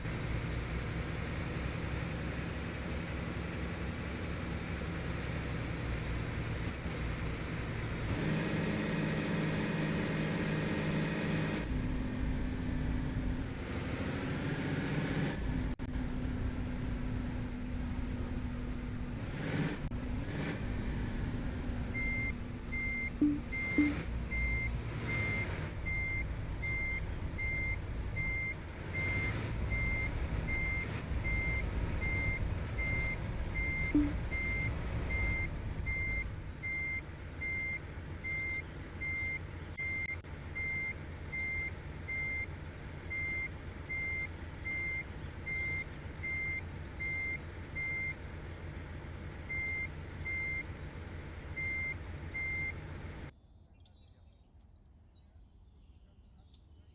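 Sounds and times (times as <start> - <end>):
diesel engine rumble: 0.0 - 53.3
truck reversing alarm beeping: 21.8 - 48.4, 49.4 - 50.8, 51.5 - 52.9.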